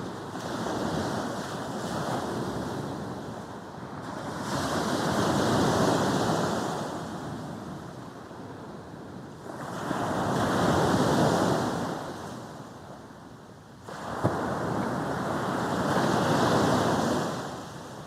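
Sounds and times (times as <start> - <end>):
sea waves breaking on beach: 13.8 - 18.0.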